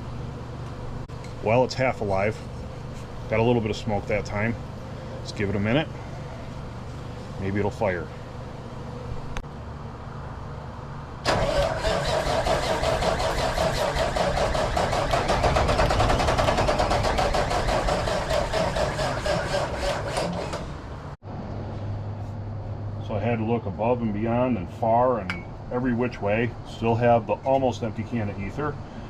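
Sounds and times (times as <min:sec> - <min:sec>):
diesel engine cranking over: 0:11.2 - 0:21.2.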